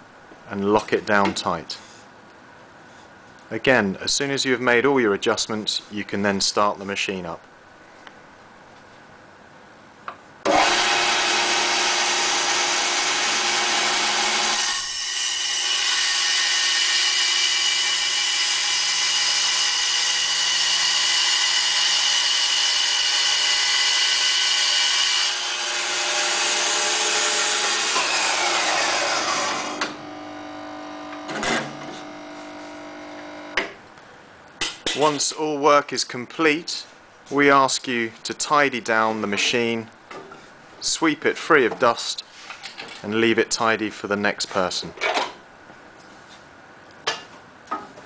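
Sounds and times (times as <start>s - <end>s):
bandsaw running with high whine: 10.4s - 33.6s
bandsaw spinning down: 10.5s - 33.5s.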